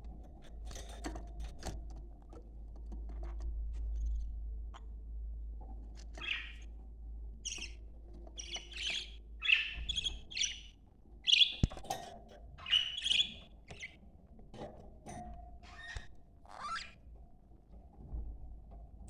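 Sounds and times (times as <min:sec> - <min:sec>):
budgerigars chirping: 0:06.2 - 0:06.7, 0:07.4 - 0:07.8, 0:08.4 - 0:11.8, 0:12.6 - 0:14.0.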